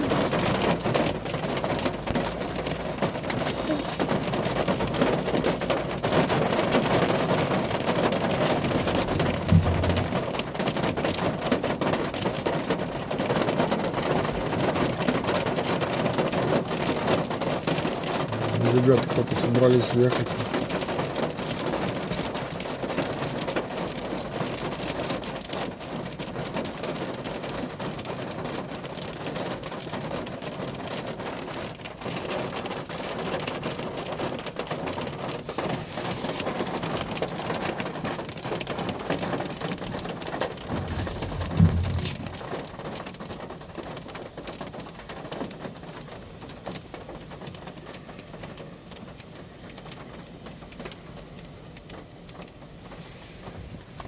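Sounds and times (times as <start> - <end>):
steady rain falling: 0.0 - 54.0
low thump: 9.0 - 10.5, 40.7 - 42.6.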